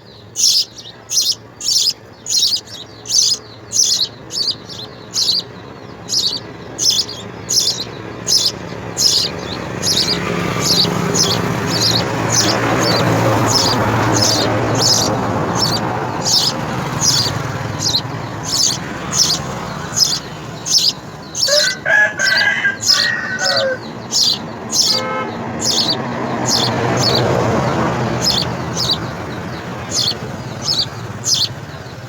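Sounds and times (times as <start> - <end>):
sparrow chirping: 0.0 - 32.0
rooster crowing: 6.1 - 29.0.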